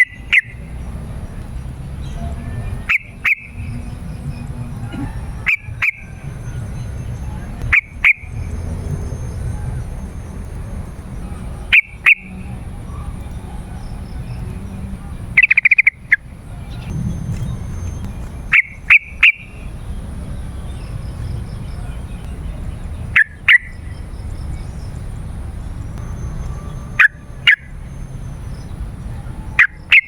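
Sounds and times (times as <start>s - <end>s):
bird chirping: 0.0s - 30.0s
low rumble: 16.0s - 23.2s.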